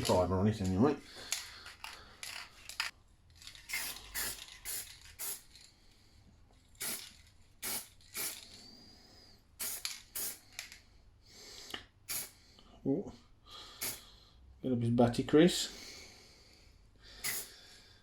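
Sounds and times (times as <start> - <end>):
aerosol can spraying: 3.7 - 5.5, 6.8 - 8.4, 9.6 - 10.4, 12.1 - 12.3, 17.2 - 17.5.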